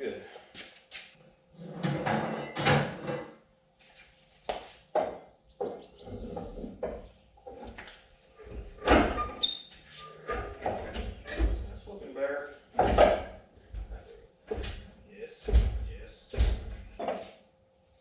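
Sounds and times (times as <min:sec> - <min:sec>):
metal knocks and clanks: 0:08.4 - 0:09.4, 0:10.2 - 0:11.8, 0:12.7 - 0:17.2
low thud: 0:15.4 - 0:16.8.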